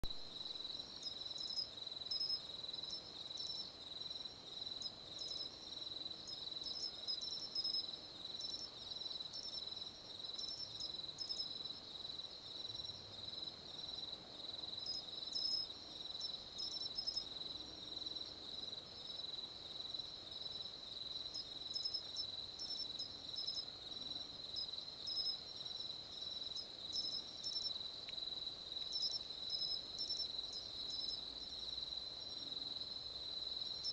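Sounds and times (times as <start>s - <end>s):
cricket chirping: 0.0s - 33.9s.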